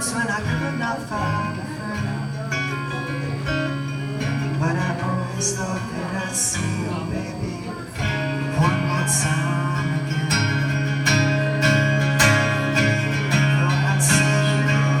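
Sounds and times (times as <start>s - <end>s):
acoustic guitar strumming: 0.0s - 15.0s
person singing: 4.2s - 10.8s, 12.8s - 15.0s.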